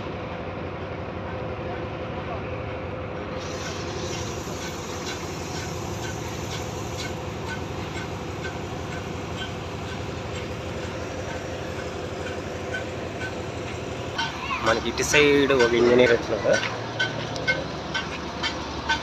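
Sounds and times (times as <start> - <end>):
heavy crane engine running: 0.0 - 19.0
faint regular ticking: 5.1 - 19.0.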